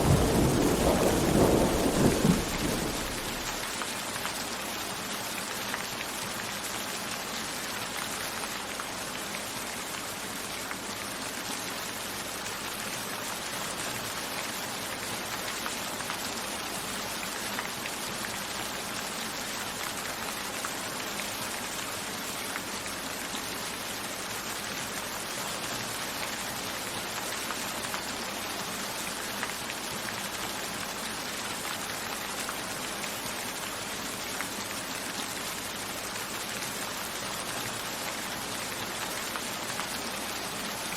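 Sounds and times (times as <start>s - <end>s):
raindrops hitting window glass: 0.0s - 3.9s
rain falling: 0.0s - 40.9s.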